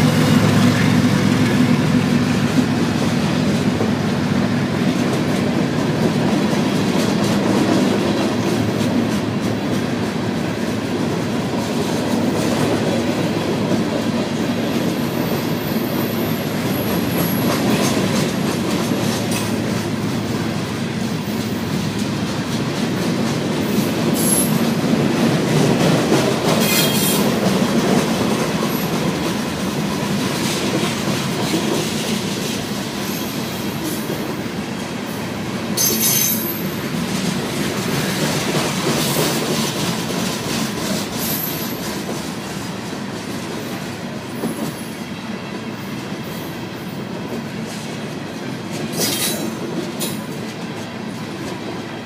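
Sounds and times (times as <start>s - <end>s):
diesel locomotive engine hum: 0.0s - 52.0s
freight wagons rumbling on rails: 0.0s - 52.0s.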